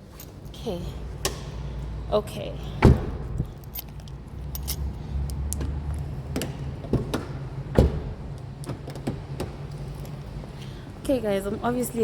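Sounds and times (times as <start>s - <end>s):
knocks and clicks inside a car: 6.3s - 9.6s.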